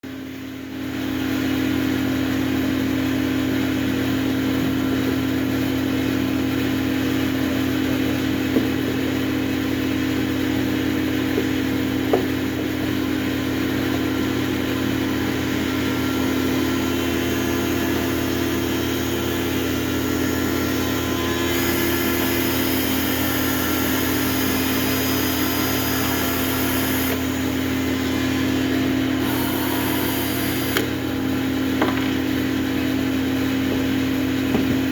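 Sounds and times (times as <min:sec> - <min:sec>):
machine motor humming: 0:14.9 - 0:34.9.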